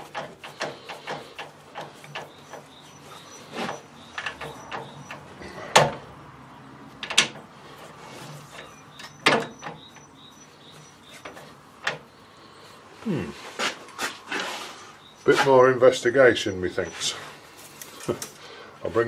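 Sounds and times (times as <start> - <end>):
sharp metal knocks and clanks: 0.0 - 6.1, 8.5 - 10.1
low workshop background: 0.0 - 19.0.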